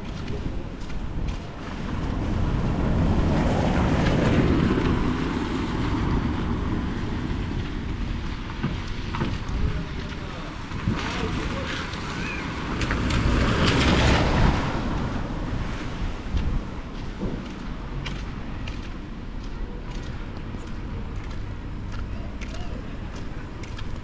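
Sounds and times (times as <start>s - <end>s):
wind buffeting microphone: 0.0s - 21.9s
wet street noise: 0.0s - 24.0s.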